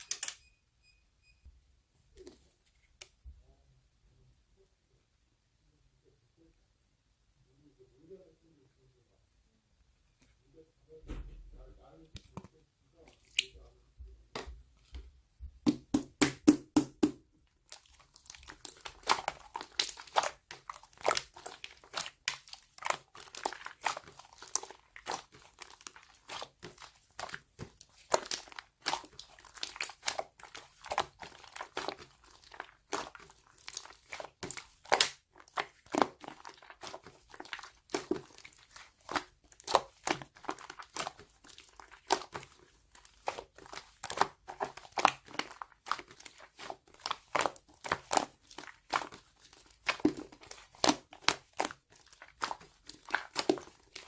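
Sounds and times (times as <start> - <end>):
slime squished by hand: 15.5 - 54.0.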